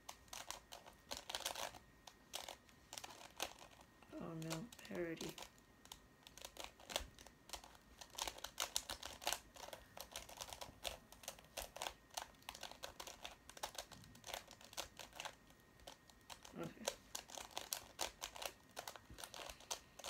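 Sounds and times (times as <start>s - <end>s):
plastic puzzle clicking: 4.4s - 20.0s.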